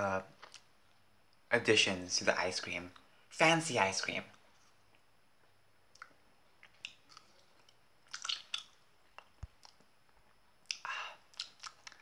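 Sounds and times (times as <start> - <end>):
person chewing: 4.5 - 12.0
wet mouth clicks: 5.9 - 9.9, 10.6 - 12.0.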